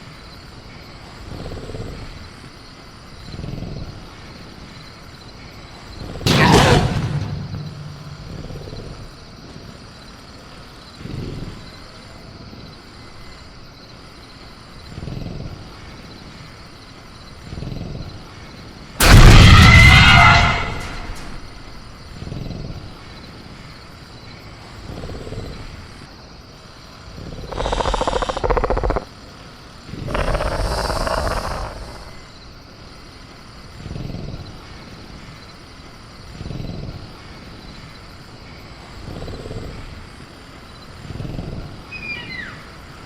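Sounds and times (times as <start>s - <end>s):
crickets chirping: 0.0s - 43.0s
raptor growls and grunts: 6.0s - 9.2s, 27.1s - 29.1s, 29.9s - 32.4s, 39.0s - 40.2s.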